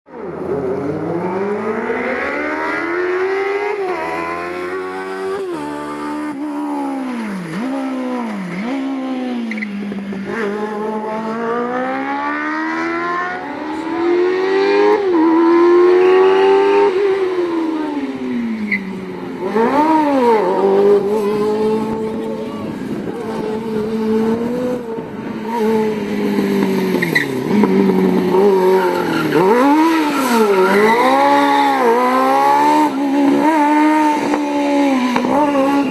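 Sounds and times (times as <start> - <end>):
engine revving through gears: 23.2 - 35.9.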